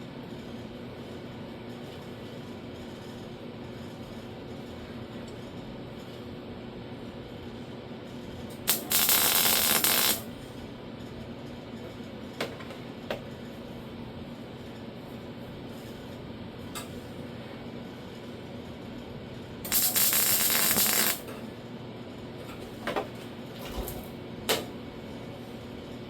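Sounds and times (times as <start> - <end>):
steady background hum: 0.0 - 26.0
welding crackling hiss: 8.5 - 10.3, 19.7 - 21.3
welder click: 8.6 - 10.2, 19.7 - 21.3.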